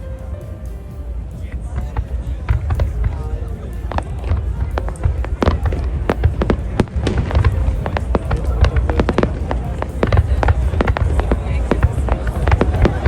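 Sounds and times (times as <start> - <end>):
low rumble: 0.0 - 13.0
fireworks bangs and crackles: 1.0 - 13.0.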